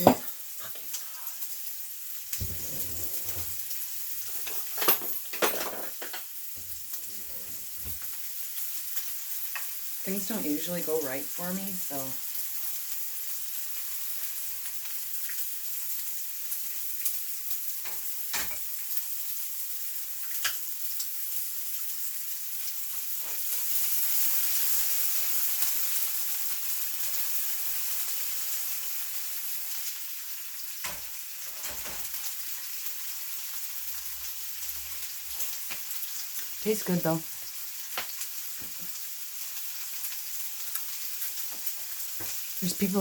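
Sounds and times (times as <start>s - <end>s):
food sizzling in a pan: 0.0s - 43.0s.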